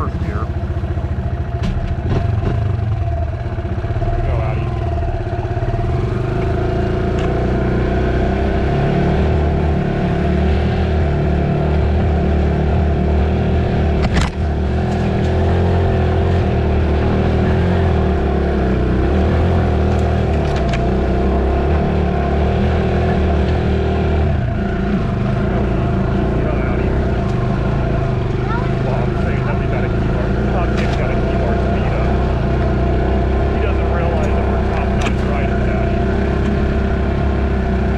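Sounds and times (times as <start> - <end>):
dirt bike engine running: 0.0 - 37.9.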